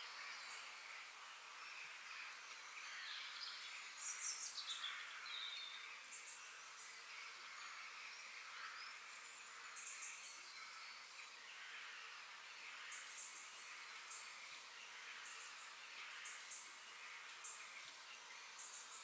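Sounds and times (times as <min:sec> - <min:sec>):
wild birds chirping and trilling: 0:00.0 - 0:19.0.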